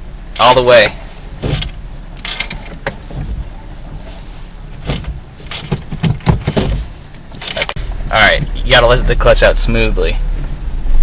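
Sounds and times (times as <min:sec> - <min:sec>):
car engine rumble: 0:00.0 - 0:11.0
clicks and clunks of car controls: 0:00.3 - 0:08.8.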